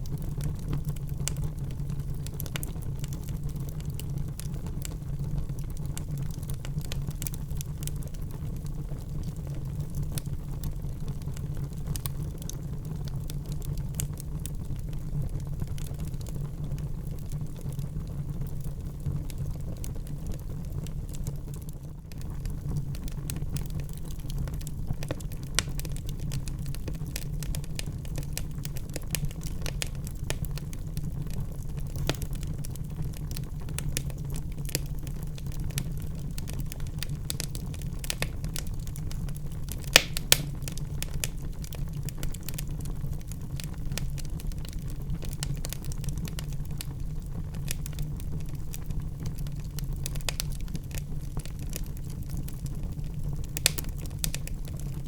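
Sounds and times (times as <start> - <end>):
low rumble of flame: 0.0 - 55.0
wood fire crackling: 0.0 - 55.0
sharp fire pops: 39.7 - 42.8, 53.4 - 54.8.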